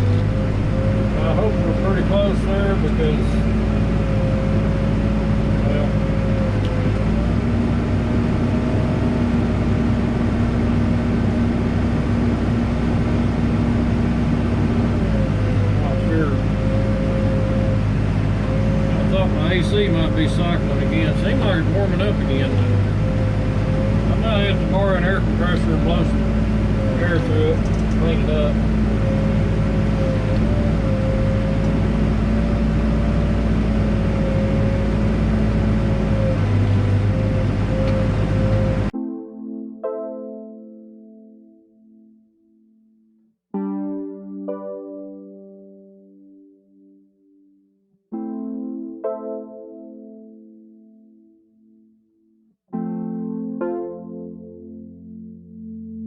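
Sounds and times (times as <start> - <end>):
diesel engine running: 0.0 - 39.0
high whine: 8.0 - 39.0.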